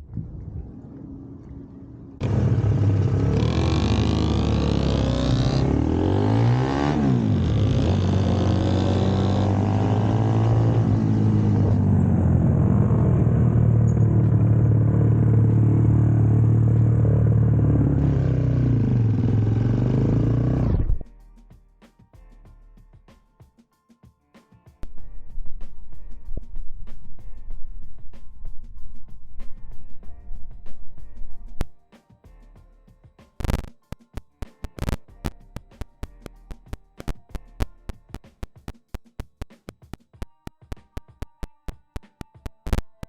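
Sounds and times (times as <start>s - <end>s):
motorcycle engine cruising: 2.0s - 21.0s.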